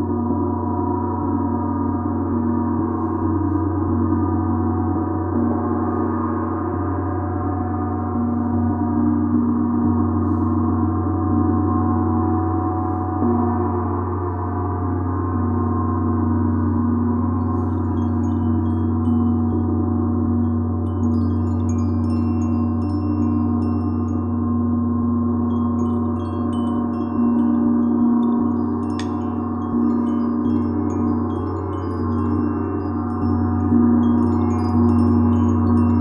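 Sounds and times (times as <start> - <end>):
gong humming and shimmering: 15.4 - 36.0.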